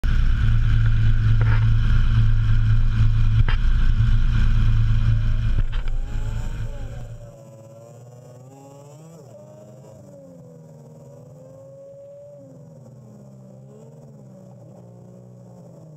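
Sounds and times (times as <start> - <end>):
quiet tone rising and falling: 0.0 - 15.8
car engine droning: 0.0 - 15.9.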